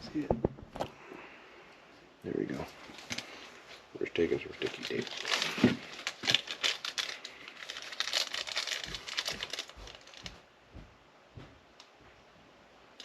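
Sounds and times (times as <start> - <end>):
sticky tape crinkling: 4.4 - 10.4.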